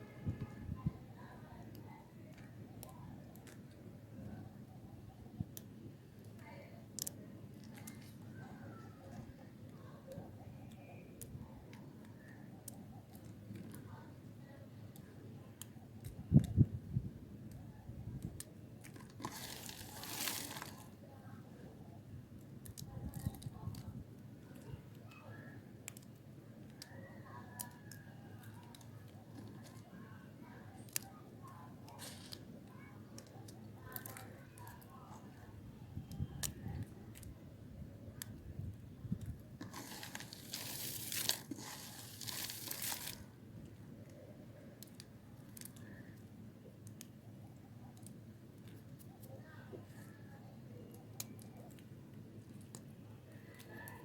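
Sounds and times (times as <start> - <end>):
knife cutting dry soap: 39.6 - 43.2.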